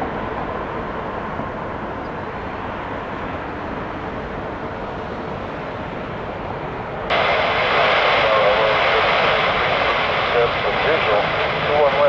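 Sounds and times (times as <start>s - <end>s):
jet airliner taking off: 7.1s - 12.0s.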